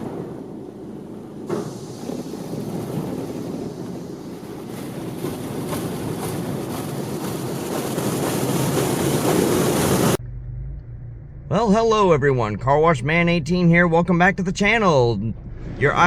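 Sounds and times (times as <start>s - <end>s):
high-pressure water spray hiss: 1.5s - 5.0s.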